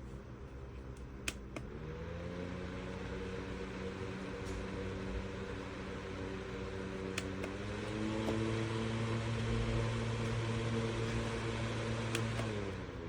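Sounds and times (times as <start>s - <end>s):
portable fan motor hum: 0.0s - 13.0s
fan switch click: 1.2s - 1.7s, 7.0s - 12.8s.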